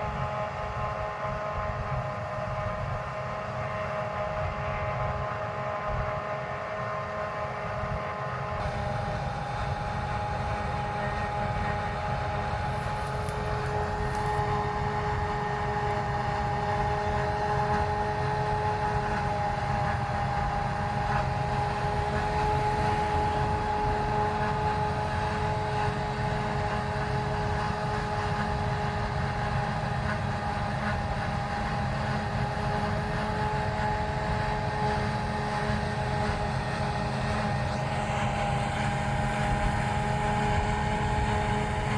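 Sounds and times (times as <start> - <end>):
high machine whine: 8.6 - 41.9.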